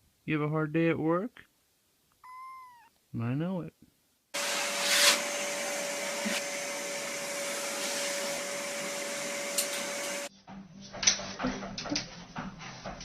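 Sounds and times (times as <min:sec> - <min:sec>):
appliance motor humming: 0:04.4 - 0:10.3.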